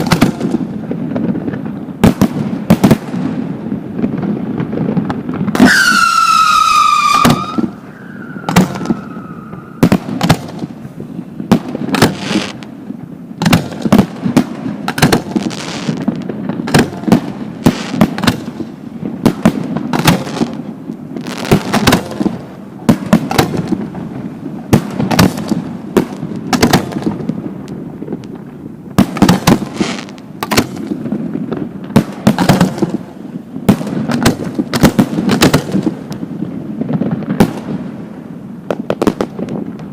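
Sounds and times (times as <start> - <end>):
firework shells bursting: 5.1 - 10.9
falling firework whistles: 5.5 - 10.4.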